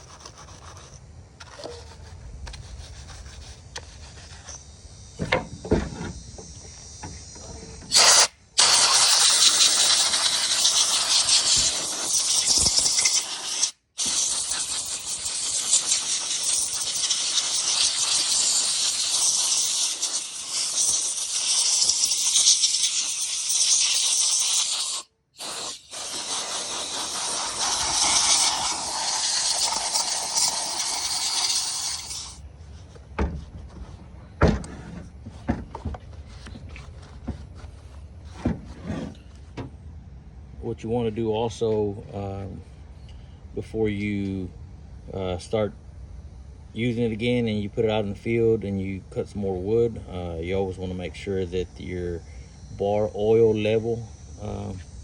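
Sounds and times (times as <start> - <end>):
pressure washer jet hissing: 4.0 - 32.4.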